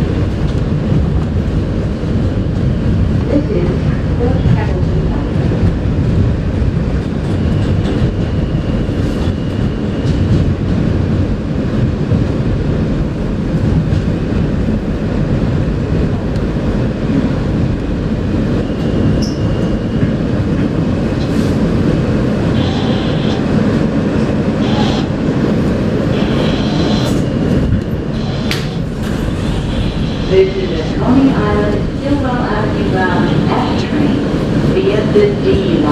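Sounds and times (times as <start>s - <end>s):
subway wheels rumbling on track: 0.0s - 35.9s
high-pitched wheel squeals: 26.1s - 27.2s.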